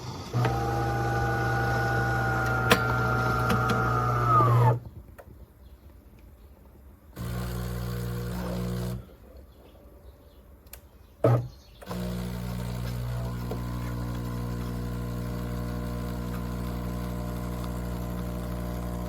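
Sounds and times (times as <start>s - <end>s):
espresso machine humming: 0.2s - 4.8s, 7.2s - 9.0s, 11.9s - 19.0s.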